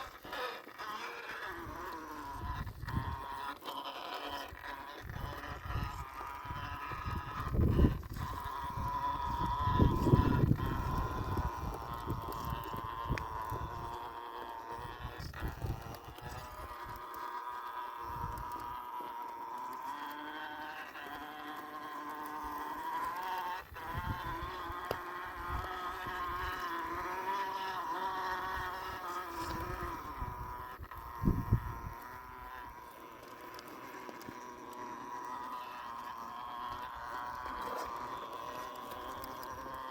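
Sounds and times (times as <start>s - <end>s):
toy car electric motor whining: 0.0s - 39.9s.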